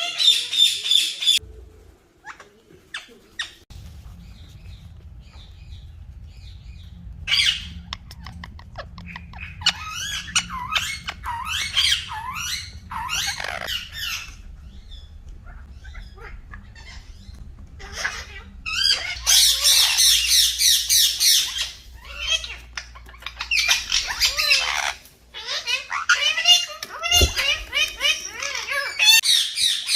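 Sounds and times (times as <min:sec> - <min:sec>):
steady low hum: 0:02.8 - 0:25.3, 0:27.0 - 0:28.6
parrot squawk: 0:15.4 - 0:29.8.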